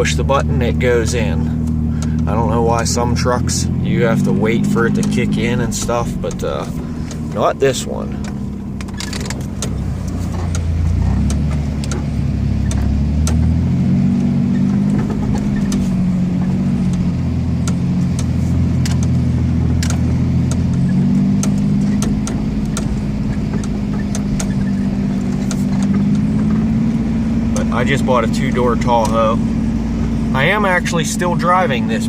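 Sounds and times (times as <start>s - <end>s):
pickup engine running: 0.0s - 32.0s
light clicks and knocks: 4.9s - 13.6s, 14.2s - 27.7s.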